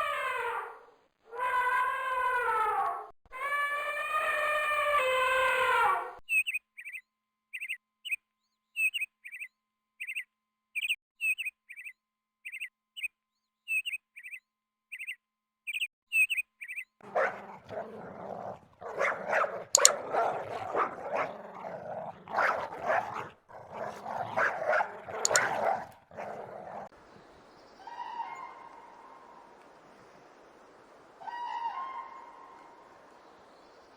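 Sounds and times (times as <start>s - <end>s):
bird chirping: 6.3s - 33.9s
dog barking: 17.0s - 26.9s.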